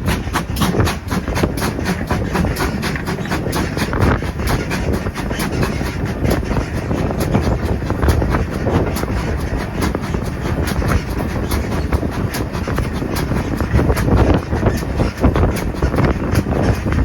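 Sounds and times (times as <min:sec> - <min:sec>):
clicks and knocks of wheels: 0:00.0 - 0:17.0
train running on rails: 0:00.0 - 0:17.0.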